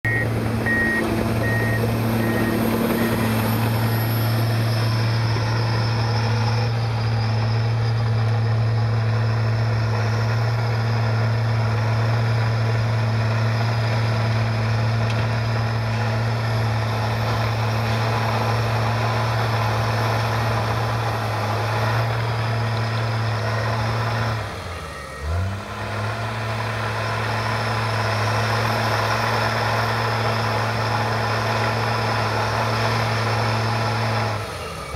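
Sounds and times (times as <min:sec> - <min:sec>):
backup alarm beeping: 0:00.0 - 0:06.2
bulldozer diesel engine running: 0:00.0 - 0:34.9.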